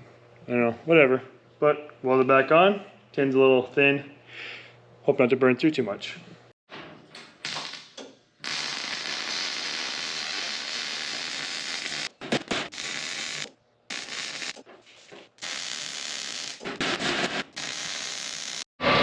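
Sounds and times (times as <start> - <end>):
arc welder crackling hiss: 7.4 - 18.7.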